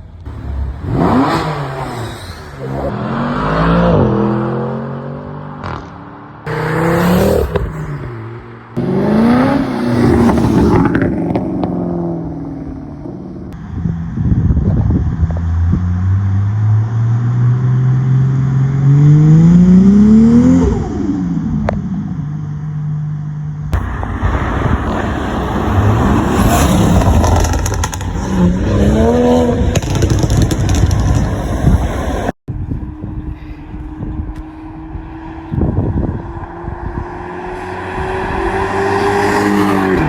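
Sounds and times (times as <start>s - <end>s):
car engine revving: 0.3s - 13.2s, 23.8s - 32.4s
car engine accelerating hard: 23.8s - 32.4s.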